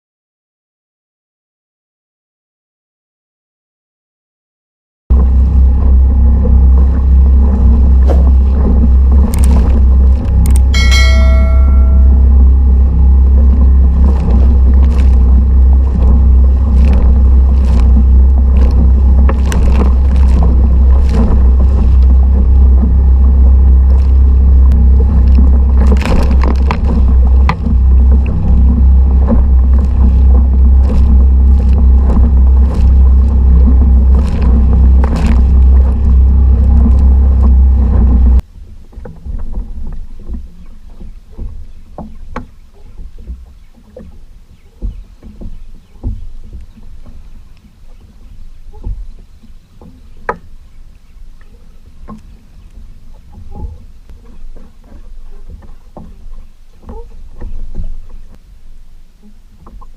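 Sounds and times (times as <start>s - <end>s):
outboard motor droning: 5.1s - 59.9s
brief metallic ring: 10.8s - 12.3s.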